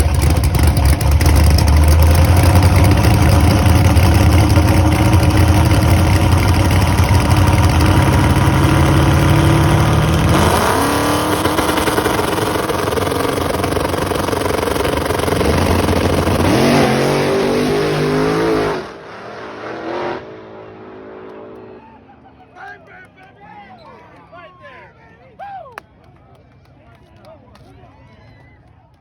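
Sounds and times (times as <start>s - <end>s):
racing engine at full throttle: 0.0s - 22.4s.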